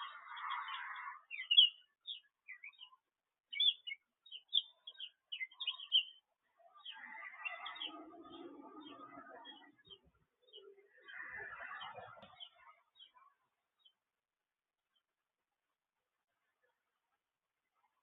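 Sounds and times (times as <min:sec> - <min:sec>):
birds chattering: 0:00.0 - 0:06.2, 0:06.8 - 0:13.9
birds chirping: 0:00.0 - 0:14.0.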